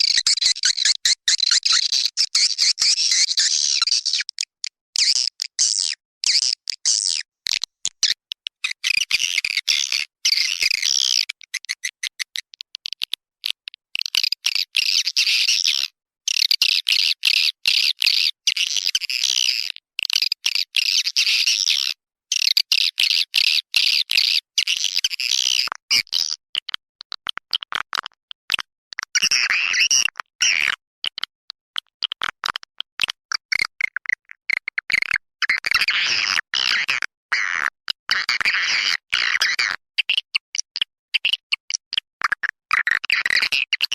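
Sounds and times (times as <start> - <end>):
swiftlet twittering chatter: 0.0 - 7.2.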